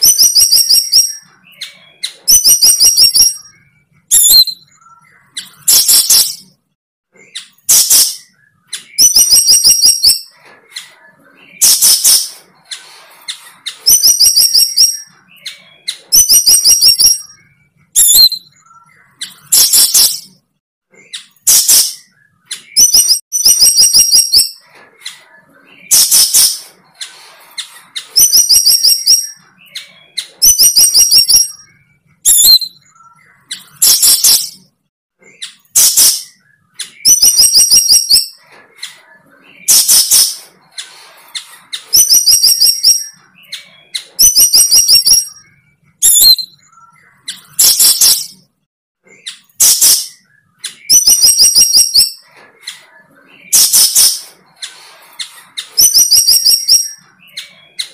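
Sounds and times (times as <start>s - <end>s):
harsh bird chirp: 0.0s - 57.9s.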